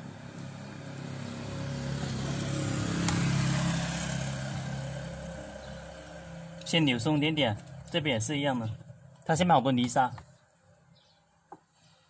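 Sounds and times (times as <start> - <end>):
vehicle engine passing by: 0.0 - 9.1.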